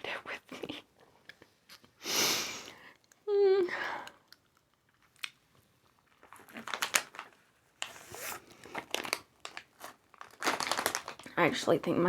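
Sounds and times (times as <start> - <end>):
crunching and chewing snack: 4.1 - 7.4, 8.5 - 11.3.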